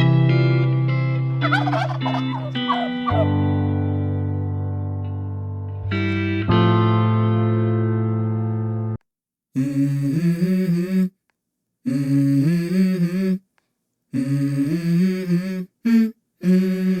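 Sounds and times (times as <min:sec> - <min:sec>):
person humming a melody: 0:09.6 - 0:11.2, 0:11.8 - 0:13.4, 0:14.1 - 0:17.0.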